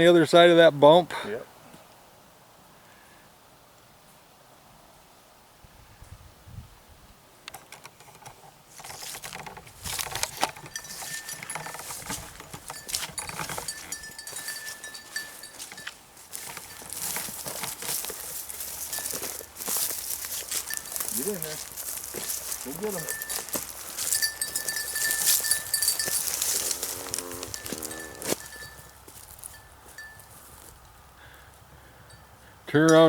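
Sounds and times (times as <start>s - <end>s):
dog rustling through brush: 9.8s - 29.5s
dog collar bell jingling: 10.6s - 30.5s.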